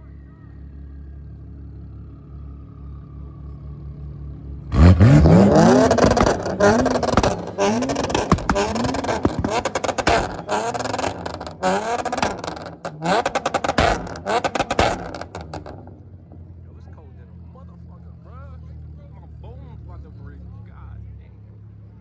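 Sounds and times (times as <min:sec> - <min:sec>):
car engine revving: 0:04.7 - 0:16.6
sharp exhaust cracks: 0:04.7 - 0:16.6.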